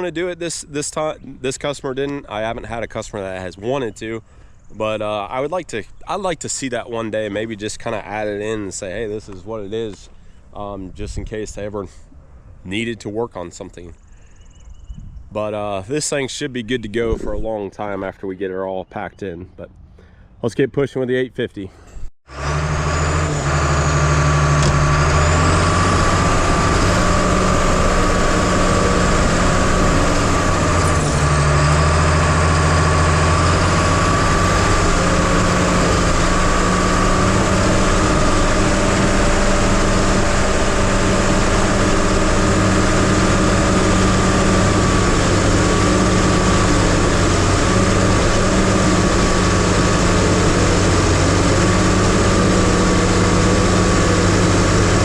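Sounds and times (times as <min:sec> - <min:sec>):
bulldozer diesel engine running: 0:00.0 - 0:11.7, 0:22.3 - 0:55.0
steady whine: 0:22.4 - 0:55.0.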